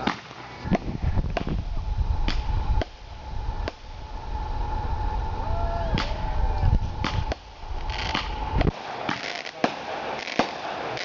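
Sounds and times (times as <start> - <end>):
fireworks bangs: 0.0 - 11.0
low rumble: 0.6 - 8.8
steady tone: 0.6 - 8.9.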